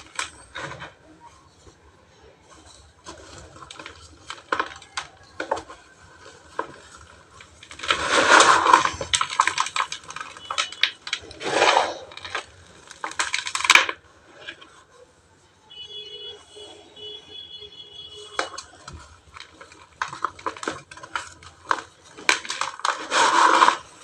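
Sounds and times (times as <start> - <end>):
cement chunks crumbling and crunching: 0.0 - 1.9, 2.5 - 14.8, 18.2 - 24.0
small gritty clicks: 2.6 - 11.4, 18.1 - 24.0.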